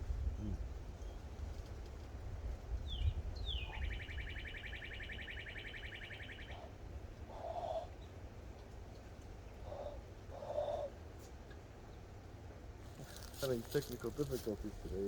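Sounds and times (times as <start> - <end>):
high bird trill: 2.9 - 8.0.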